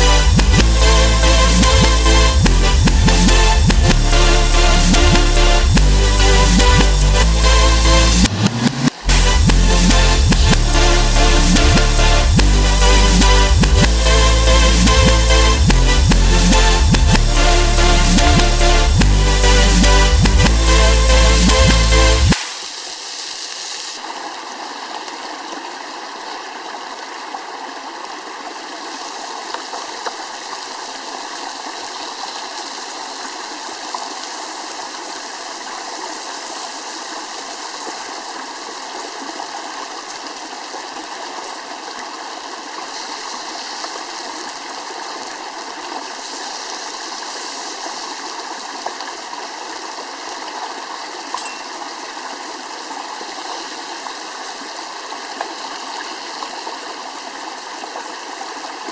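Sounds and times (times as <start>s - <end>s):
stream water running: 21.7s - 58.9s.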